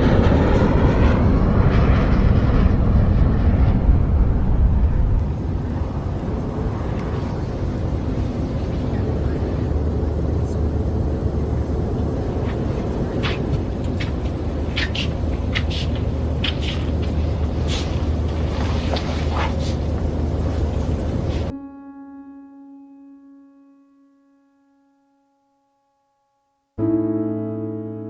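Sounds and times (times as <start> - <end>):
jet engine rumble in cabin: 0.0 - 21.5.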